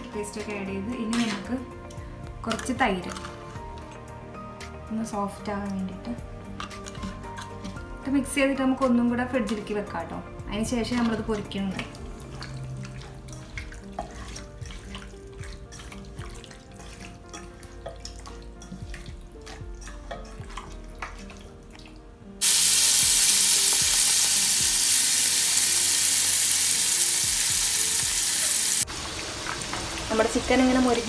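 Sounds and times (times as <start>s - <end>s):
soft background music: 0.0s - 31.0s
chicken being mixed by hand: 10.8s - 22.0s
chicken deep-frying in hot oil: 22.4s - 31.0s.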